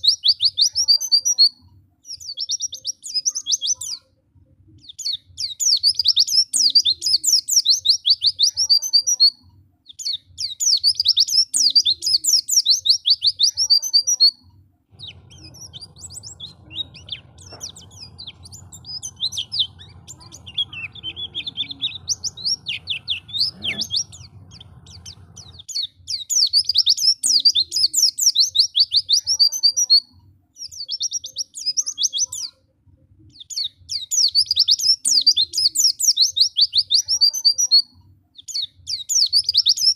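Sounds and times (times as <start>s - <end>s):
bird twittering: 9.9s - 32.6s
faint low hum: 13.4s - 28.1s.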